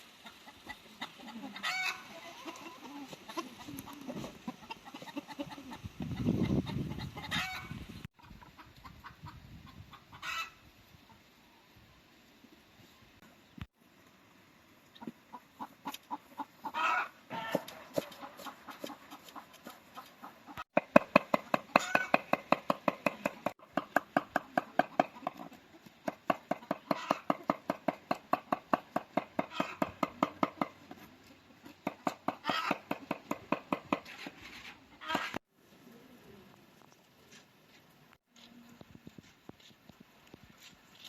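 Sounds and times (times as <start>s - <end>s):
chickens clucking: 0.0s - 11.6s, 14.9s - 35.4s
chicken calls: 0.2s - 11.6s, 14.9s - 20.7s, 21.4s - 22.5s, 23.1s - 27.5s, 29.4s - 33.1s, 34.9s - 35.4s.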